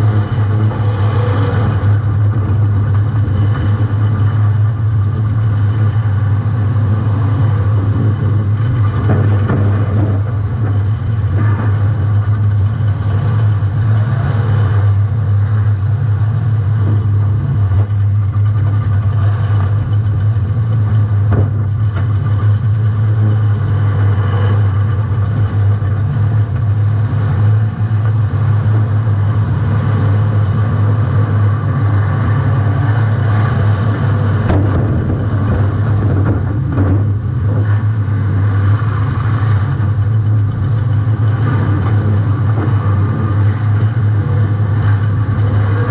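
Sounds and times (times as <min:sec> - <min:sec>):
car engine running loudly: 0:00.0 - 0:45.9.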